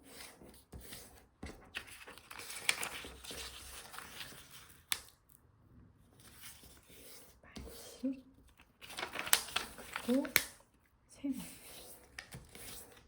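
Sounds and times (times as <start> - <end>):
paper rustling and crinkling: 0.2 - 5.1, 6.1 - 10.6, 11.6 - 13.0
paper fold snaps: 8.8 - 10.6.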